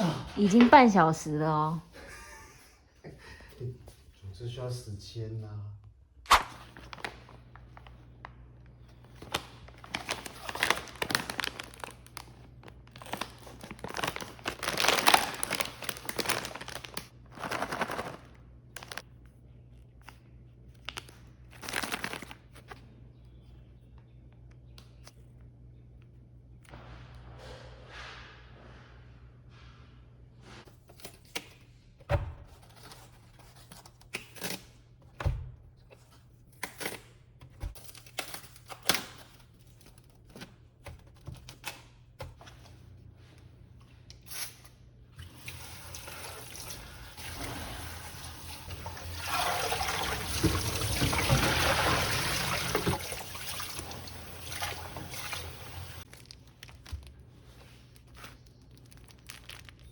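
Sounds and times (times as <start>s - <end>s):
liquid pouring: 45.2s - 56.1s.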